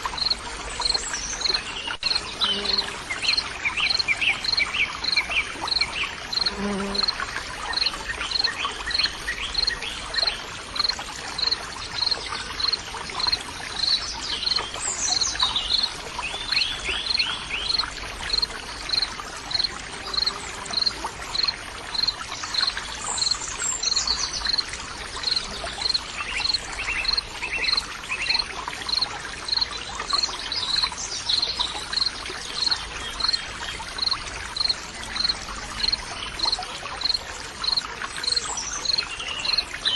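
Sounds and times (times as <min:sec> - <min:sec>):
water trickling: 0:00.0 - 0:39.9
insect chirping: 0:00.1 - 0:07.2, 0:34.0 - 0:35.3.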